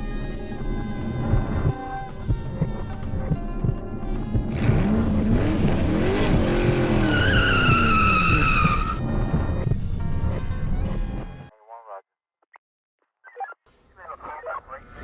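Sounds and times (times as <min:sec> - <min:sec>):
car engine revving: 0:00.0 - 0:11.2
music: 0:00.0 - 0:12.0
tyres squealing: 0:06.4 - 0:09.0.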